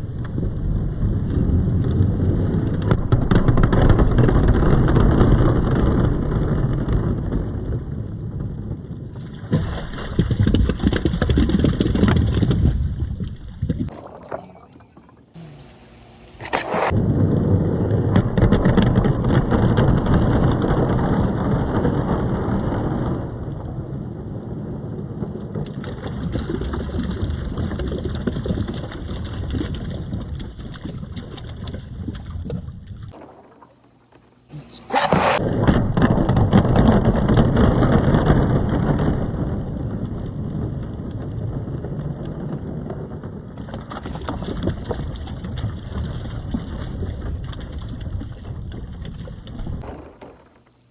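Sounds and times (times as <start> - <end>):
water noise: 13.2 - 17.0, 33.2 - 35.4, 49.7 - 50.9
balls rolling on wooden track: 33.2 - 35.4, 49.8 - 50.9.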